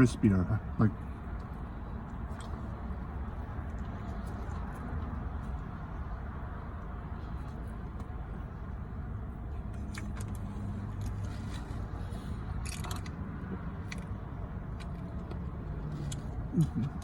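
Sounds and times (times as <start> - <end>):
eating clicks and rustles: 1.0 - 6.2, 9.6 - 17.0
person humming: 16.6 - 17.0.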